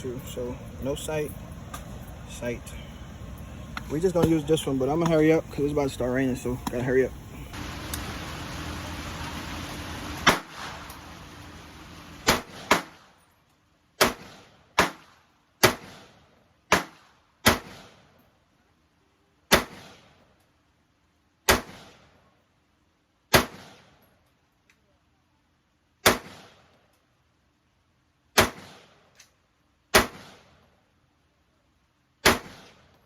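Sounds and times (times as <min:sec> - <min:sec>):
gunshots: 0:10.2 - 0:10.8, 0:12.2 - 0:13.2, 0:14.0 - 0:18.0, 0:19.5 - 0:20.1, 0:21.5 - 0:22.1, 0:23.3 - 0:23.9, 0:26.0 - 0:26.6, 0:28.4 - 0:29.0, 0:29.9 - 0:30.6, 0:32.2 - 0:32.9.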